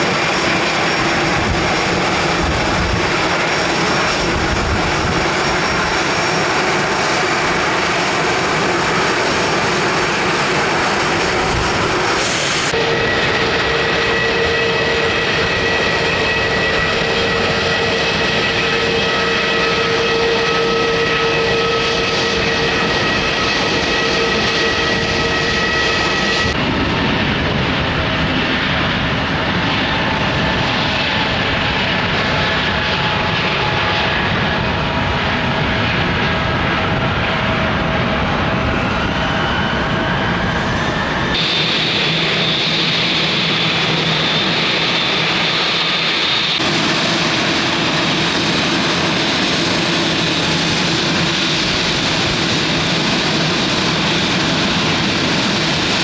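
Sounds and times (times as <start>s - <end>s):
steady whining tones: 0.0s - 28.2s
jet engines running: 0.0s - 56.0s.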